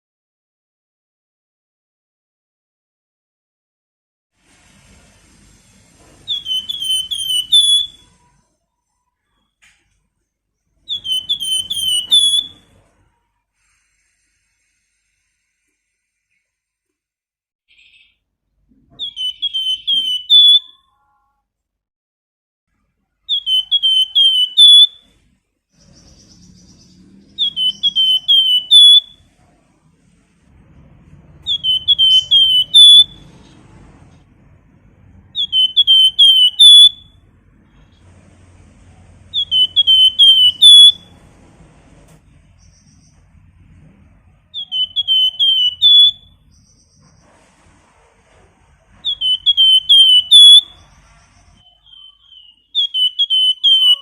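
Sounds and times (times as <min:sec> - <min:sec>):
songbird whistling: 0:06.3 - 0:08.4, 0:10.8 - 0:12.7, 0:17.7 - 0:18.2, 0:19.0 - 0:20.9, 0:23.3 - 0:25.2, 0:25.8 - 0:29.3, 0:31.4 - 0:33.3, 0:35.3 - 0:37.2, 0:39.3 - 0:41.2, 0:44.5 - 0:47.2, 0:49.0 - 0:54.0.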